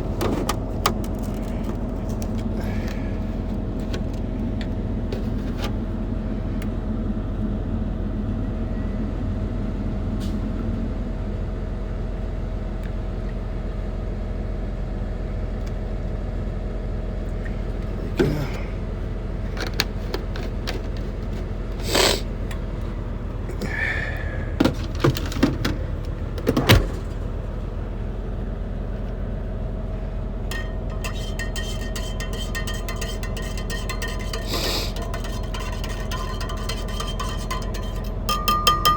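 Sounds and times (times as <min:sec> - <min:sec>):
truck engine idling: 0:15.1 - 0:38.9
knocks and clinks of handling: 0:19.5 - 0:21.6, 0:30.5 - 0:38.9.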